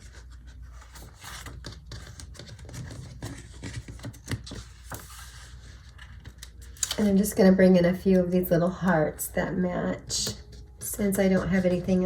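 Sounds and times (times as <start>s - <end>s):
paper stickers rustling and scraping: 0.0s - 7.4s, 10.0s - 12.0s.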